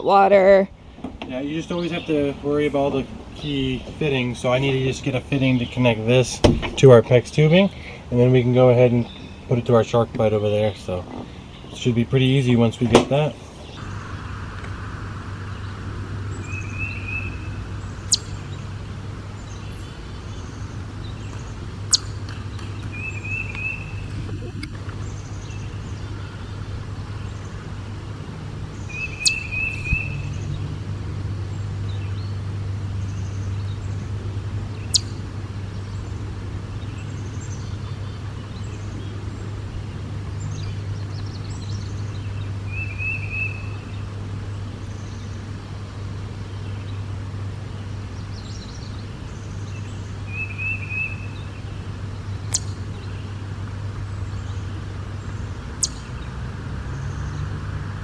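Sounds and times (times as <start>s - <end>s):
small bird chirping trill: 16.4s - 18.8s, 19.4s - 24.1s, 28.8s - 30.4s, 34.8s - 36.0s, 52.2s - 53.3s, 55.3s - 56.3s.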